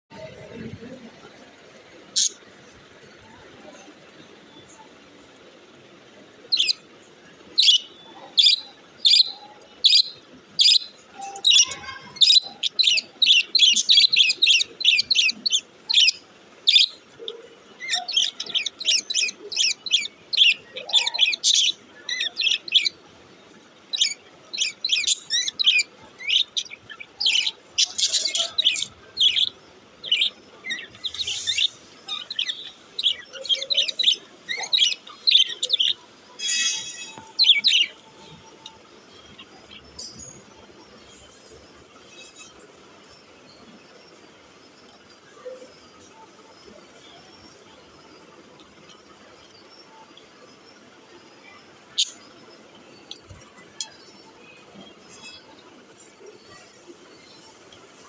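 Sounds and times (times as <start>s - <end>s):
budgerigars chirping: 7.6s - 17.0s, 17.8s - 22.9s, 23.8s - 36.0s.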